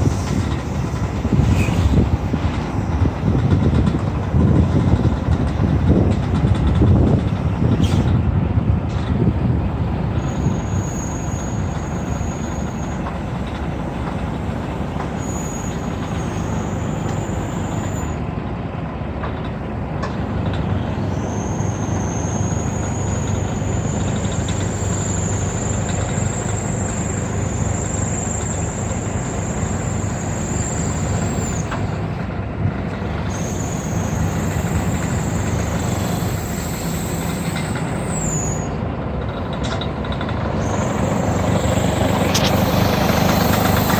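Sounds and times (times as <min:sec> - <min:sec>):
truck diesel engine running: 0:00.0 - 0:43.9
high whine: 0:33.1 - 0:43.9.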